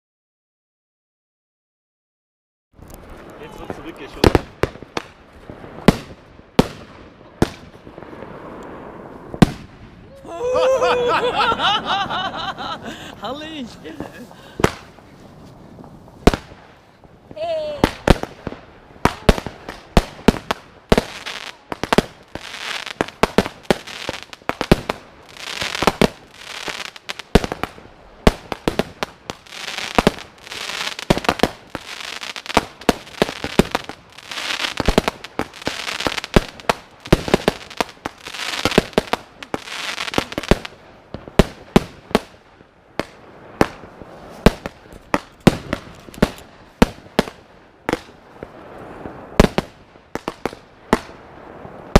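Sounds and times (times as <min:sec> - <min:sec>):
firework crackling: 0:02.8 - 0:51.9
firework sharp bangs: 0:03.2 - 0:10.0, 0:13.7 - 0:15.0, 0:15.8 - 0:17.1, 0:17.8 - 0:42.4, 0:43.0 - 0:51.9.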